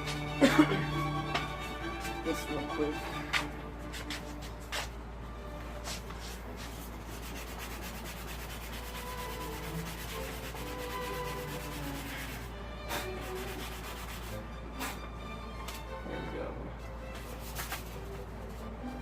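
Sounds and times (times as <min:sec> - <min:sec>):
sandpaper rubbing on metal: 0:05.9 - 0:15.0, 0:17.3 - 0:18.0.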